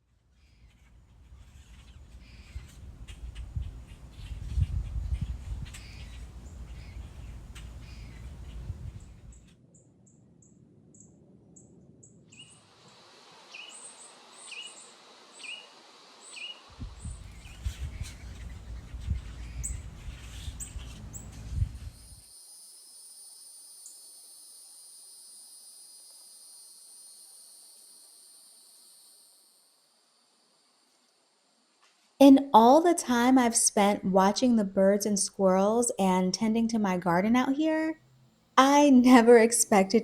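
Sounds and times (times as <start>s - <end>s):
birds chirping: 5.2s - 9.5s, 16.2s - 21.5s
insects droning: 10.4s - 17.5s, 21.9s - 31.8s.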